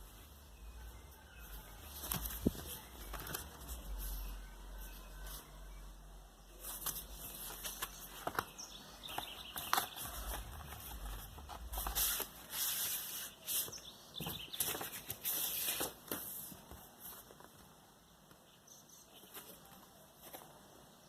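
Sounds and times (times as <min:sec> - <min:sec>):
packaging rustling and crinkling: 0:01.8 - 0:04.0, 0:06.6 - 0:17.6.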